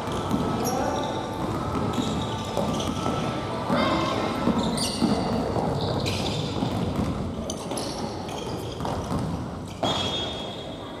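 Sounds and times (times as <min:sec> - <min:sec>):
court noise: 0:00.0 - 0:07.7
shoes squeaking on floor: 0:04.0 - 0:06.8, 0:07.5 - 0:10.7.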